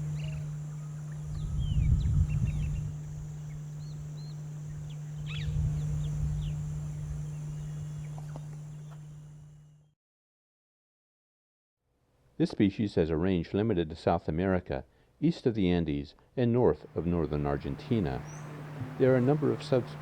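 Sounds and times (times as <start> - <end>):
birds chirping and whistling: 0.0 - 9.2, 17.0 - 20.0
low rumbling noise: 0.0 - 9.4, 16.8 - 20.0
steady low hum: 0.0 - 9.9, 16.8 - 20.0.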